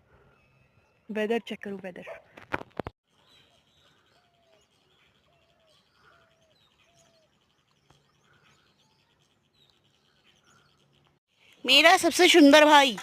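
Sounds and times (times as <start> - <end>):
small bird chirps: 3.1 - 11.9.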